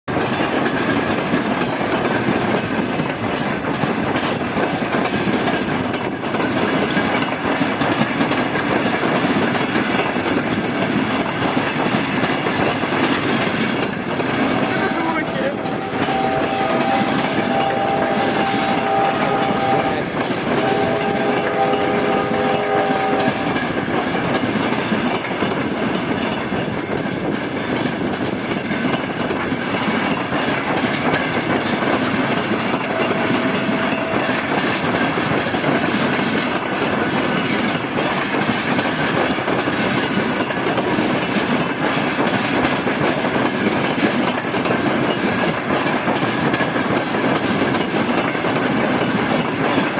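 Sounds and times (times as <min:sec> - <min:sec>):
train wheels clattering on rails: 0:00.0 - 0:49.9
train horn blasts: 0:14.8 - 0:23.7, 0:32.8 - 0:34.6.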